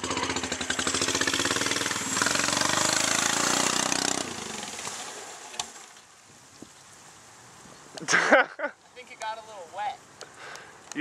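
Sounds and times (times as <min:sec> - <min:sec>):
lawn tractor engine under load: 0:00.0 - 0:05.9.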